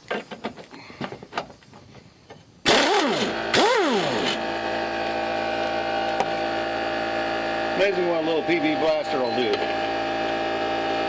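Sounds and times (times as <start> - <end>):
impact wrench whirring: 2.7 - 11.0
steady machine hum: 2.7 - 11.0.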